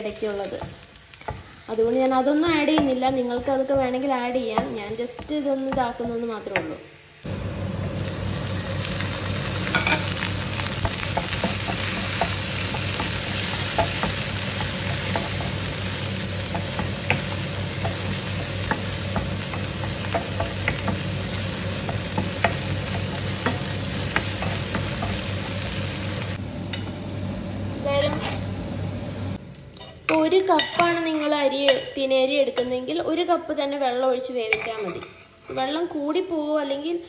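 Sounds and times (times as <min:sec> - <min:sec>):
vegetables sizzling in ghee: 0:00.0 - 0:37.0
wooden spatula scraping a pan: 0:34.5 - 0:35.8.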